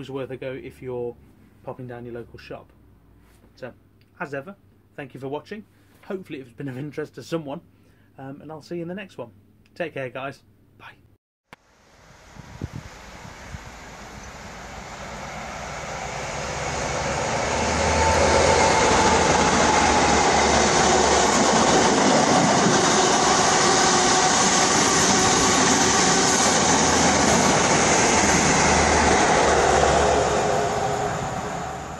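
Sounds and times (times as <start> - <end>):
train running past: 11.7 - 31.9.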